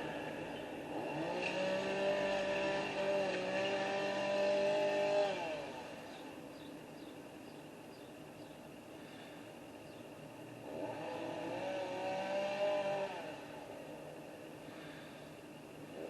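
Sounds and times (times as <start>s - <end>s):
chainsaw revving: 0.8s - 6.2s, 10.6s - 13.8s.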